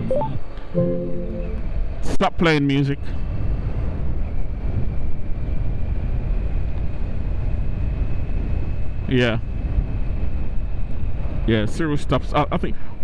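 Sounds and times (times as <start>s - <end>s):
faint high whine: 0.0s - 2.0s
wind rumble on helmet microphone: 1.6s - 13.0s.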